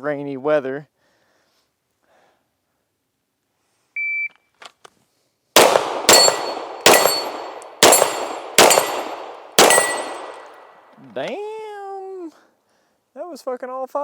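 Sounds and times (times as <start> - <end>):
handgun shots: 5.6 - 10.7
steel targets ringing: 5.6 - 10.7.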